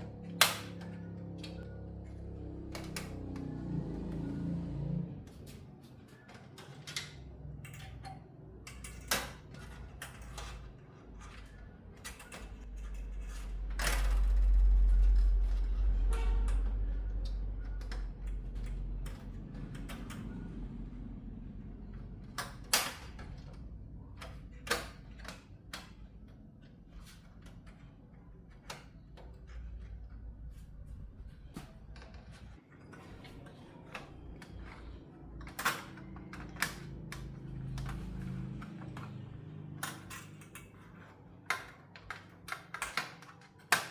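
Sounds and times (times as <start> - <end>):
tools clicking and knocking on parts: 6.2 - 15.7, 21.9 - 43.9.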